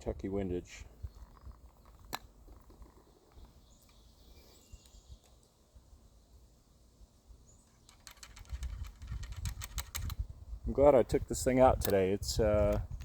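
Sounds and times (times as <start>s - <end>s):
faint bird chirps: 0.8s - 2.1s, 2.8s - 5.5s
rustling and light clicking: 7.6s - 10.2s.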